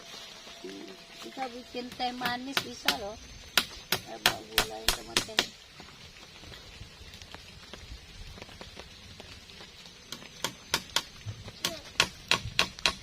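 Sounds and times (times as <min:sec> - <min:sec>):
sharp knocks: 0:10.4 - 0:13.0.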